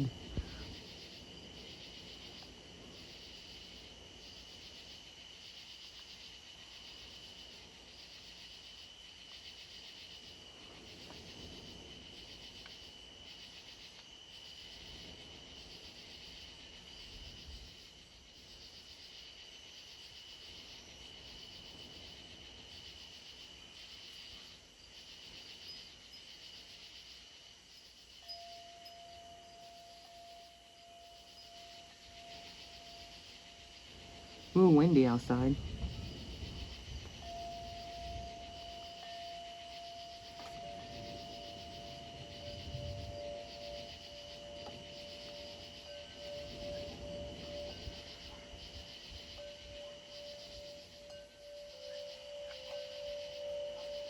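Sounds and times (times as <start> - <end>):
wind rumbling on microphone: 0.0 - 4.5, 31.4 - 51.6
insects trilling: 0.0 - 54.0.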